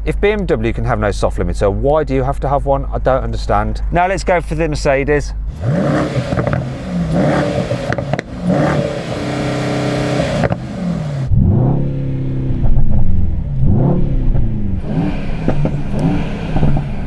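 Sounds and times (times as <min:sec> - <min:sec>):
car engine revving: 0:05.4 - 0:17.0.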